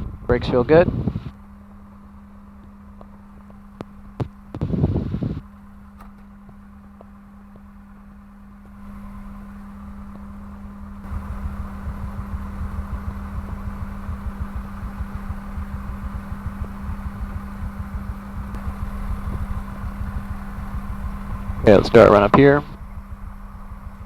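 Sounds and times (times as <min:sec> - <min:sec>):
aircraft engine running: 0:00.0 - 0:24.0
cockpit hum: 0:00.0 - 0:24.0.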